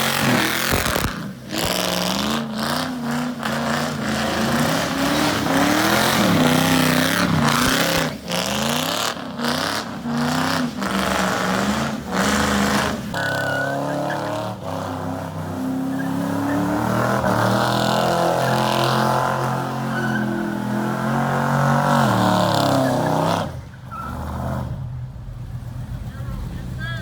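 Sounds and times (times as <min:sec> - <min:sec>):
car engine revving hard: 0:00.0 - 0:24.9
tyre squeal: 0:12.2 - 0:14.6, 0:15.8 - 0:21.2, 0:22.0 - 0:24.4.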